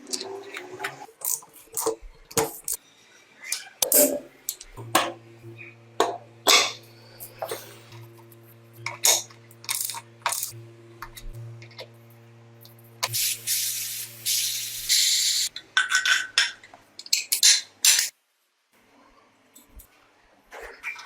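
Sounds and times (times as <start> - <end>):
machine hum: 4.2 - 15.5
spraying hiss: 13.0 - 15.5.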